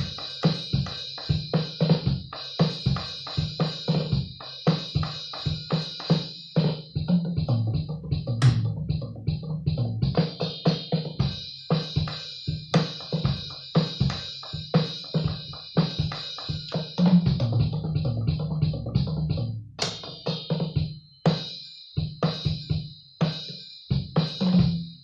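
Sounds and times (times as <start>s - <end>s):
ringing cymbals: 0.0s - 6.9s, 10.6s - 17.1s, 20.1s - 25.0s.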